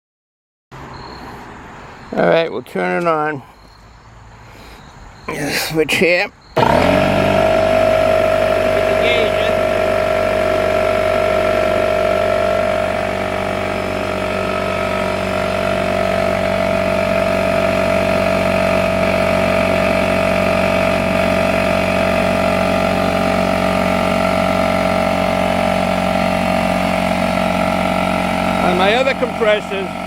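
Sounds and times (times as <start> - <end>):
air compressor running: 6.6 - 30.0.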